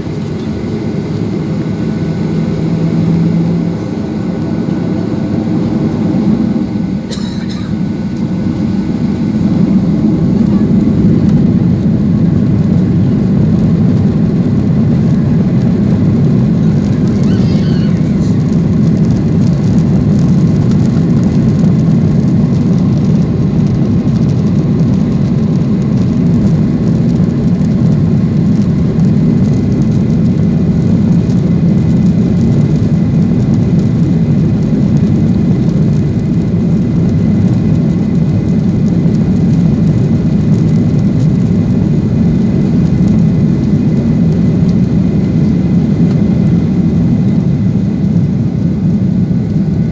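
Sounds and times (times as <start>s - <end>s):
airflow noise: 0.0s - 19.2s
jet engines roaring in cabin: 0.0s - 49.9s.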